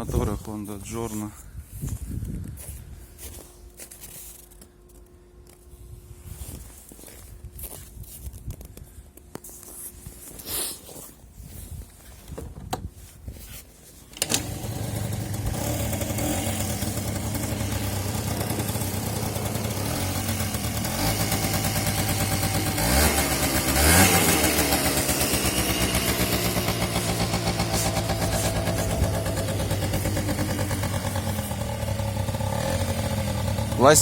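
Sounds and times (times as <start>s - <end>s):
moped engine starting and idling: 14.1s - 34.0s
moped engine revving: 14.2s - 34.0s.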